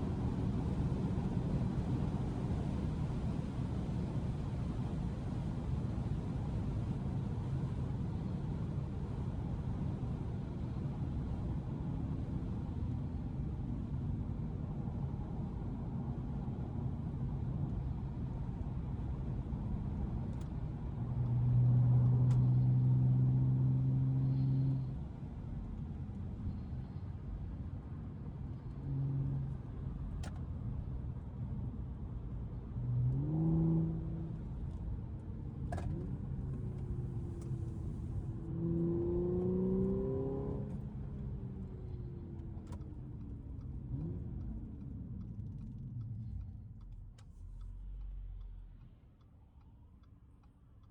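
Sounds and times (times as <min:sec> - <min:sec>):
road noise: 0:00.0 - 0:50.9
car engine accelerating: 0:21.0 - 0:27.8, 0:31.9 - 0:49.3.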